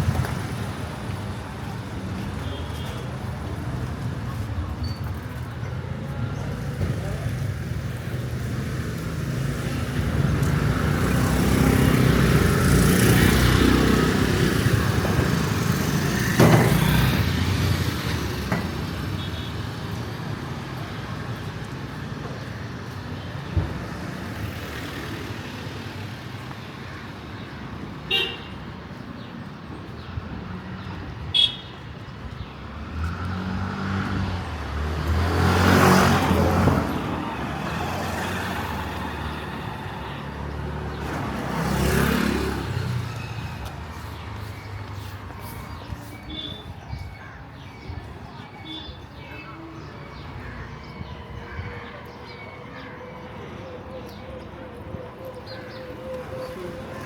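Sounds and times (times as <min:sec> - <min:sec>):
motor vehicle passing: 0:40.6 - 0:46.1.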